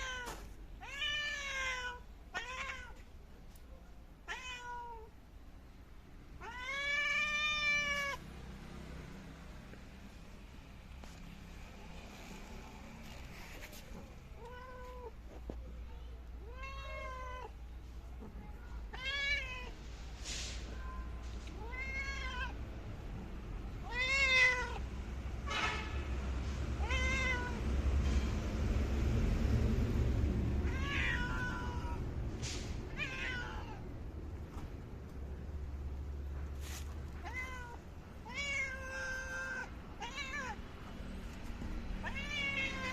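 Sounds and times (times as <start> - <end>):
cat meowing: 0.0 - 3.0, 4.2 - 5.1, 6.4 - 8.2, 16.4 - 17.6, 18.9 - 19.8, 21.5 - 22.6, 23.8 - 24.8, 26.8 - 27.6, 30.6 - 32.0, 32.9 - 33.8, 37.2 - 40.6, 42.0 - 42.9
low background rumble: 0.0 - 42.9.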